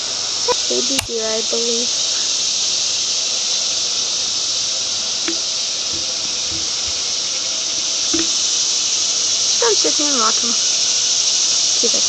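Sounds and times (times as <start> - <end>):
high-pitched hiss: 0.0 - 12.0
faint clicks: 5.2 - 7.1.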